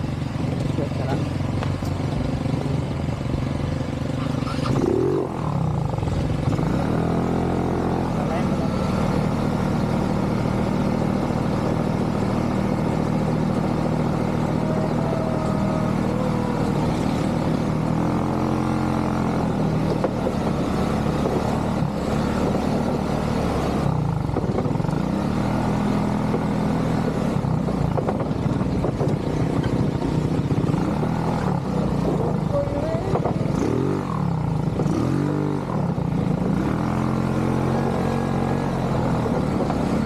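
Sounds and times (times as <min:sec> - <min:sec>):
atv engine revving: 0:00.0 - 0:40.0.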